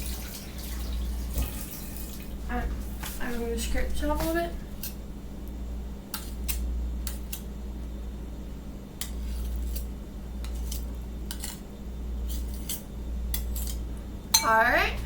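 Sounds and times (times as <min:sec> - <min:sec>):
spoon scraping a dish: 0:09.0 - 0:11.7, 0:12.3 - 0:13.8.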